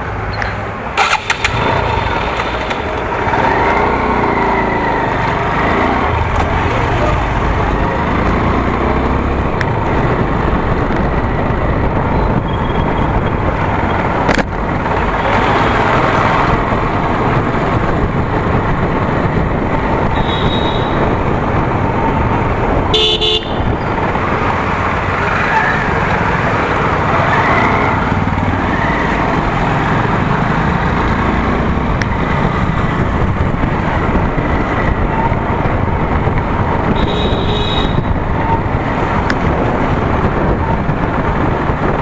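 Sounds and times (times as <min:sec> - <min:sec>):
wind and road noise: 0:00.0 - 0:42.0
motorcycle engine running: 0:01.0 - 0:04.7
vehicle horn toot: 0:20.2 - 0:21.0, 0:22.9 - 0:23.8, 0:37.0 - 0:38.1.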